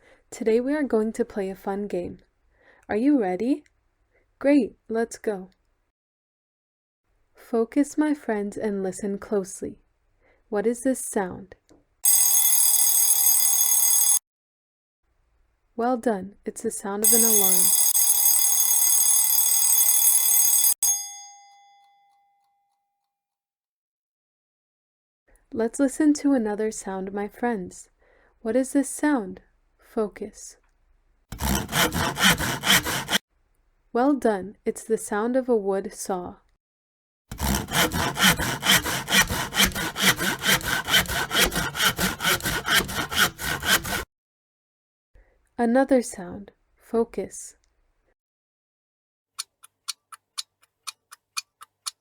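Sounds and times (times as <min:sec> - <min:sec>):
alarm clock ringing: 0:12.0 - 0:14.2, 0:17.0 - 0:22.2, 0:31.7 - 0:33.2, 0:37.4 - 0:44.0
saw cutting through wood: 0:17.1 - 0:17.9, 0:31.3 - 0:33.2, 0:37.3 - 0:44.1.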